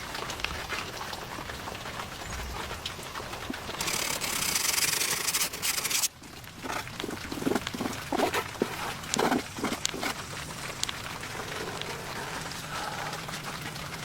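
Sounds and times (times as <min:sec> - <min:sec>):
hand tool scraping wood: 0:03.8 - 0:10.2.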